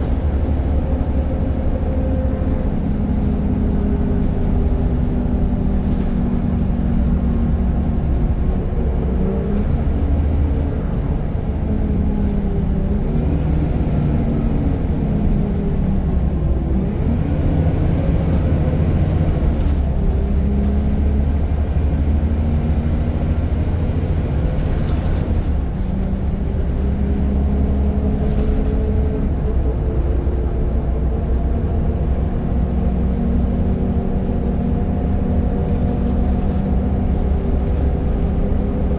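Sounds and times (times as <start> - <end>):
bus engine running under load: 0.0 - 38.9.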